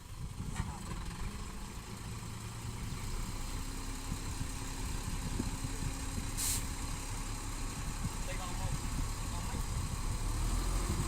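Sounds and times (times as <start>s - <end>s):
diesel engine running at low revs: 0.0s - 11.0s
short hiss: 6.4s - 6.7s.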